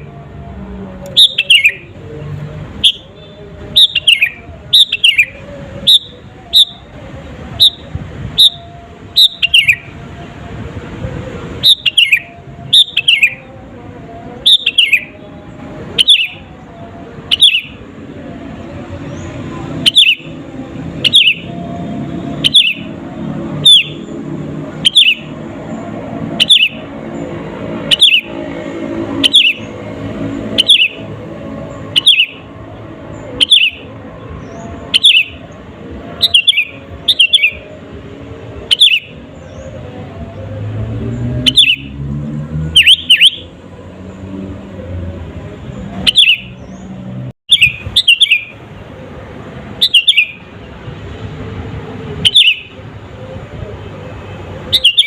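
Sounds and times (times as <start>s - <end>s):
bird calling sharp notes: 1.1s - 1.9s, 2.8s - 6.9s, 7.6s - 9.9s, 11.6s - 13.4s, 14.4s - 15.2s, 16.0s - 16.5s, 17.2s - 17.8s, 19.2s - 20.4s, 21.0s - 23.0s, 23.6s - 24.2s, 24.8s - 25.4s, 26.2s - 26.9s, 27.8s - 28.4s, 29.1s - 31.2s, 31.8s - 32.5s, 33.2s - 35.4s, 36.1s - 37.7s, 38.6s - 39.2s, 41.4s - 42.0s, 42.8s - 43.5s, 46.0s - 46.6s, 47.5s - 48.6s, 49.8s - 50.5s, 52.2s - 52.8s, 54.6s - 55.0s.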